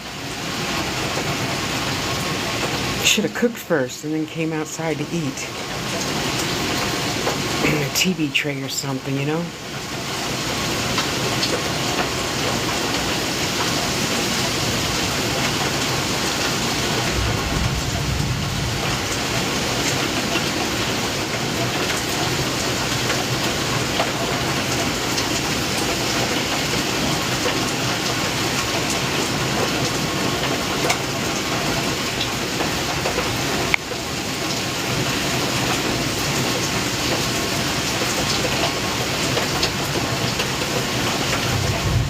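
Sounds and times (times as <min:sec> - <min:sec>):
heavy rain pouring: 0:00.0 - 0:42.0
raindrops tapping: 0:00.2 - 0:42.0.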